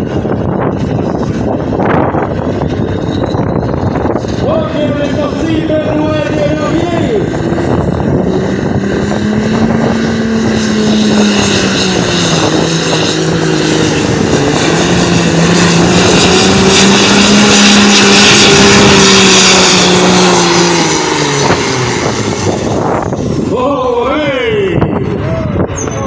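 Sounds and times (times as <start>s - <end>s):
tractor engine at full throttle: 0.0s - 26.0s.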